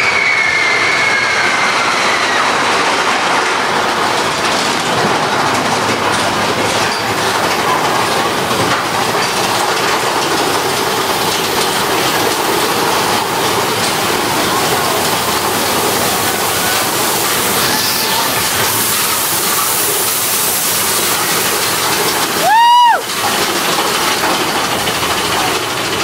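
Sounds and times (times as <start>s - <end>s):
roller coaster rushing: 0.0s - 26.0s
wheels clacking on track: 0.0s - 26.0s.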